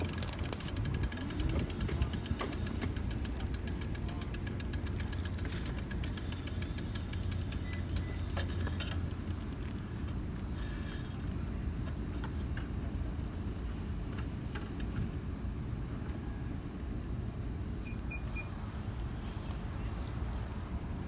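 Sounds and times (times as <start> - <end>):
fast regular ticking: 0.0 - 9.6
vehicle engine idling: 0.0 - 21.0.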